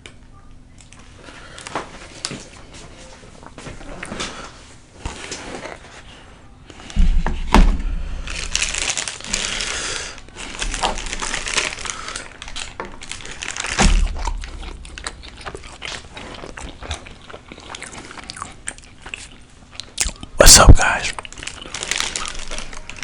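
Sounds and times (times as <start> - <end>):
food packaging crinkling: 8.2 - 23.0.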